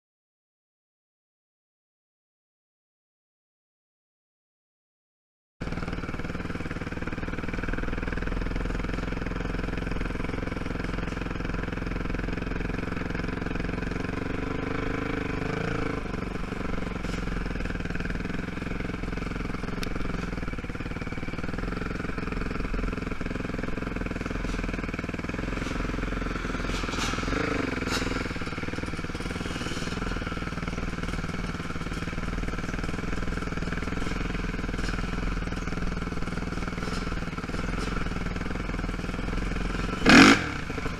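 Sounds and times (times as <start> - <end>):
quad engine running: 5.6 - 40.9
knocks and clatters: 16.0 - 40.9.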